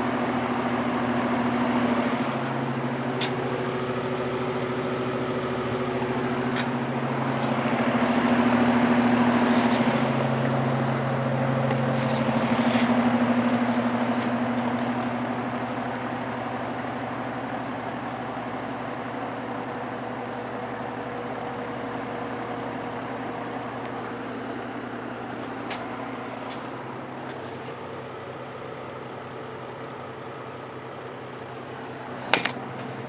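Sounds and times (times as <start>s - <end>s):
electric motor hum: 0.0s - 18.7s
box fan air rushing: 6.0s - 15.3s.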